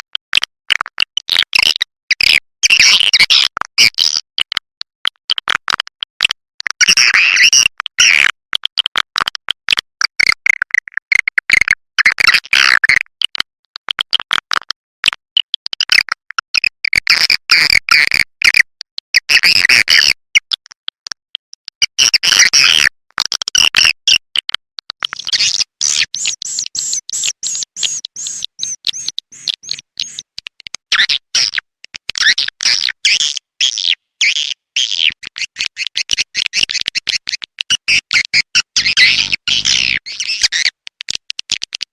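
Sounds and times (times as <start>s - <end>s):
swiftlets twittering and chirping: 25.1s - 30.4s, 33.2s - 40.7s.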